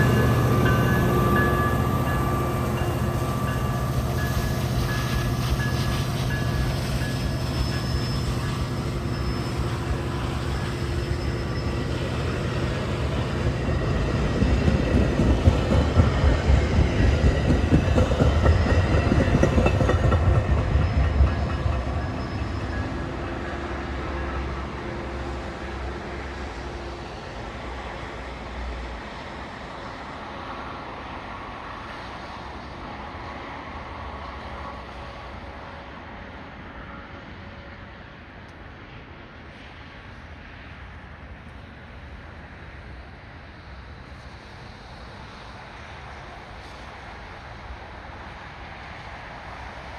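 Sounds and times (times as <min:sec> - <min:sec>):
train wheels clattering on rails: 0:00.0 - 0:23.7
diesel locomotive hum: 0:00.0 - 0:49.9.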